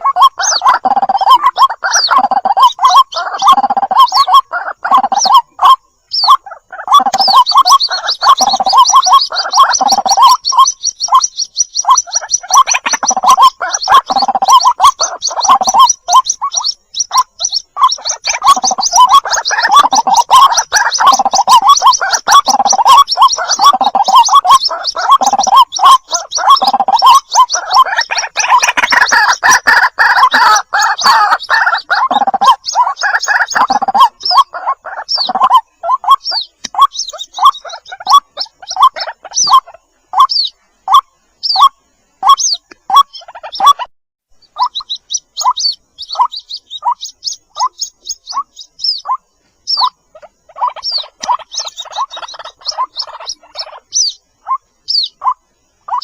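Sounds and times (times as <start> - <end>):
chicks cheeping: 0.0 - 56.0
lower repeated bird calls: 0.0 - 56.0.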